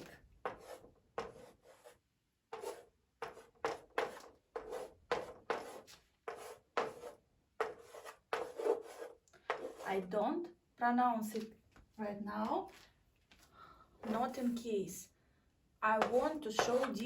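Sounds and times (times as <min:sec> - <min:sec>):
pen writing strokes: 0:00.4 - 0:09.9, 0:16.0 - 0:17.0.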